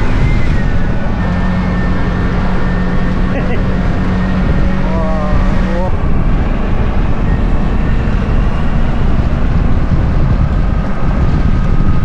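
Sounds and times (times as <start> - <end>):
road and wind noise: 0.0 - 12.0
tuk-tuk engine running: 0.0 - 12.0.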